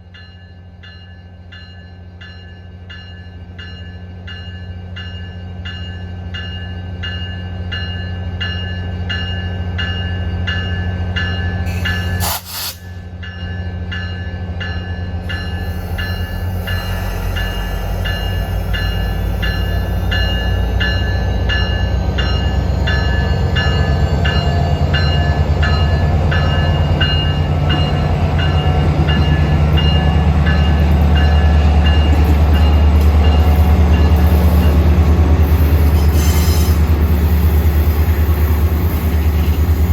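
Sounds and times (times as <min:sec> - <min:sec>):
train rumbling: 0:01.6 - 0:39.9.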